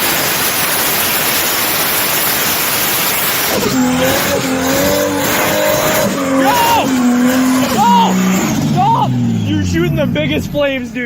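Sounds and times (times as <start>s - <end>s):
loud steady rushing noise: 0.0s - 11.0s
car's high wavering tone: 3.6s - 10.9s.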